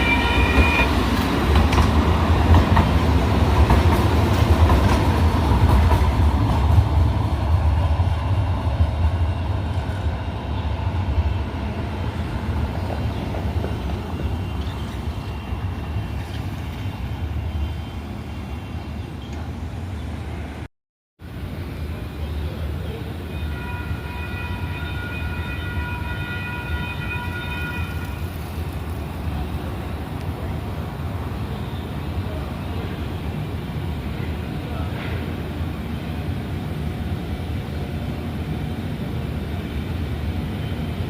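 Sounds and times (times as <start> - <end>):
train horn: 0.0 - 1.1, 23.2 - 28.3
light rail train rumbling: 0.0 - 41.0.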